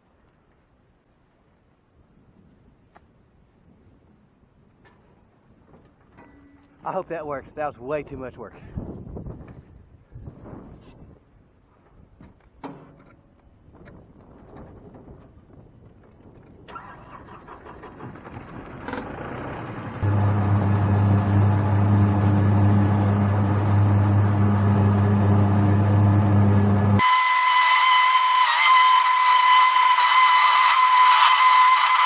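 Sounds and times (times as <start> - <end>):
tractor diesel engine running: 16.7 - 28.0.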